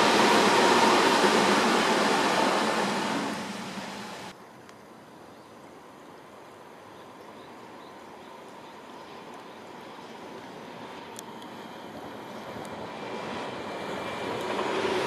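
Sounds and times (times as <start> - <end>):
approaching electric train: 0.0 - 4.4, 7.7 - 15.0.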